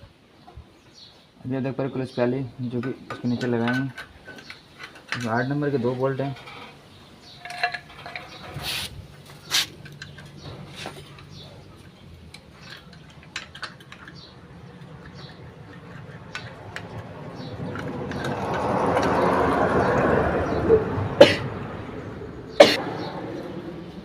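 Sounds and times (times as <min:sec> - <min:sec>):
metal tools clinking: 0:02.7 - 0:19.2.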